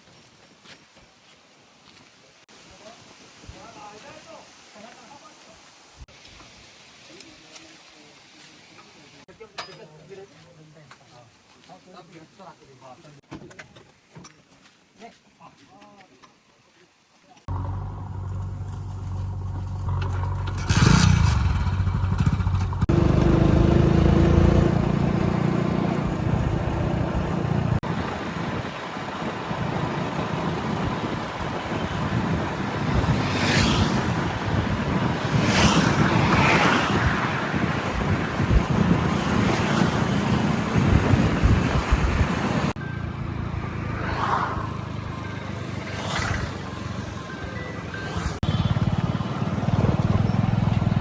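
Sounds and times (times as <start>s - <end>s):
diesel engine under load: 17.5s - 36.0s, 37.3s - 44.0s, 44.7s - 51.0s.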